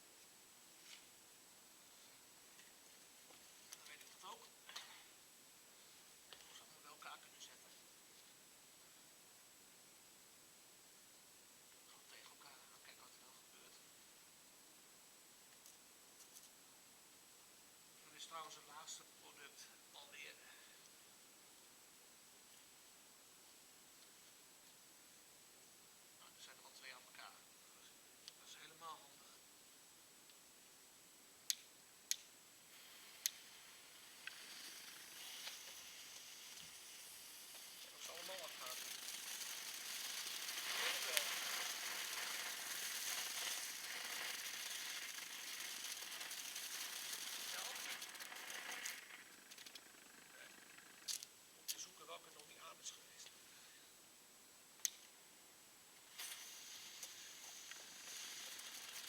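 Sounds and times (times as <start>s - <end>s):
faint firework crackles: 1.8s - 8.4s, 31.5s - 53.8s, 56.0s - 59.0s
firework pops: 31.5s - 48.0s, 56.1s - 59.0s
fireworks fizzing hiss: 32.2s - 49.8s, 56.0s - 59.0s.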